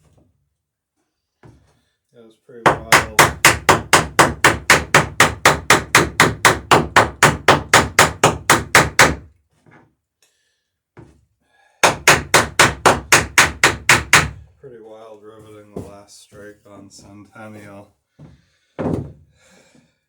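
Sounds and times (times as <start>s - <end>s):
hammer striking rivets: 2.7s - 9.3s, 11.8s - 14.4s.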